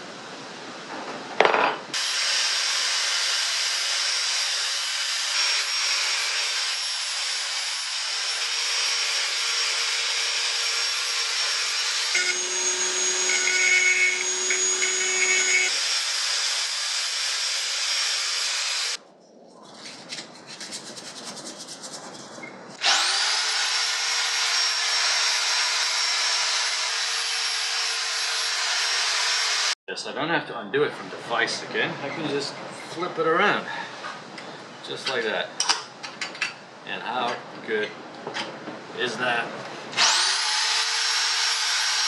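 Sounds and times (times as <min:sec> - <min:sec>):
rotary tool wire wheel whining: 0:08.2 - 0:15.8.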